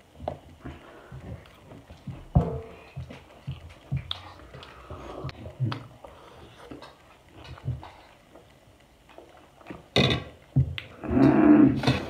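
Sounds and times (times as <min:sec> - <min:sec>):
person chewing: 0:03.2 - 0:08.4.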